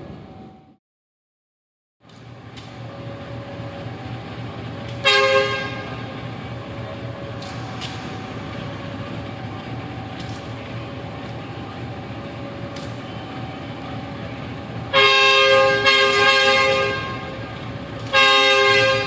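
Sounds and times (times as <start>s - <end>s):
low engine rumble: 2.0s - 19.0s
train horn blast: 4.9s - 6.3s, 14.8s - 19.0s.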